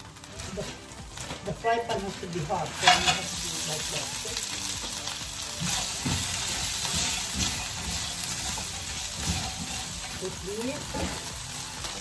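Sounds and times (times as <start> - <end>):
beans sizzling in hot oil: 0.0 - 12.0
spatula scraping pan: 2.6 - 12.0.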